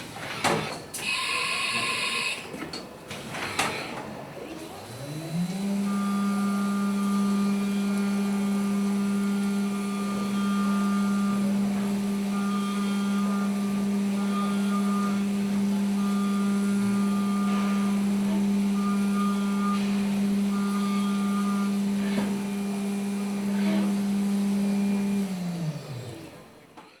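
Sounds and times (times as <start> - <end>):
milling machine spindle humming: 4.6 - 26.7.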